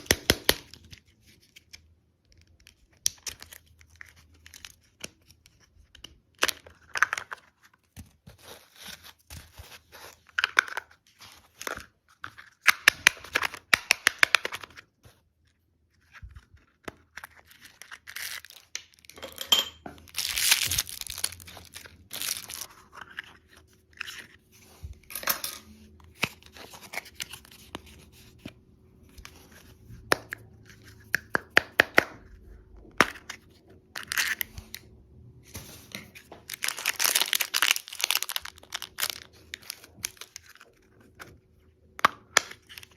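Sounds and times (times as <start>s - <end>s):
plastic wrappers crinkling: 20.0s - 24.4s, 35.8s - 41.4s.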